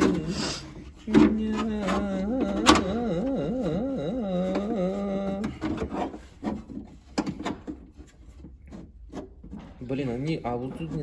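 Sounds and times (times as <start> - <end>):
parts clicking and knocking: 0.0 - 11.0
man singing mock-operatic note: 1.1 - 5.6.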